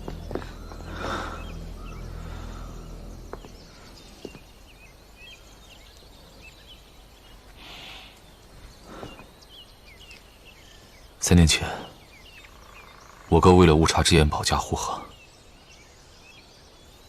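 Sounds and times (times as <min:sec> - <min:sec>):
low steady drone: 0:00.0 - 0:08.8
high bird chirps: 0:00.0 - 0:17.0.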